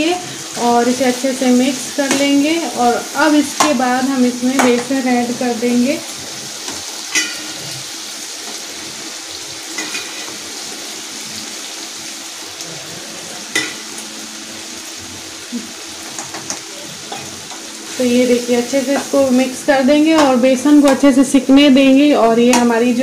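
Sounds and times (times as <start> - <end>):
vegetables sizzling in oil: 0.0 - 23.0
metal spoon clinking on pan: 7.1 - 7.6.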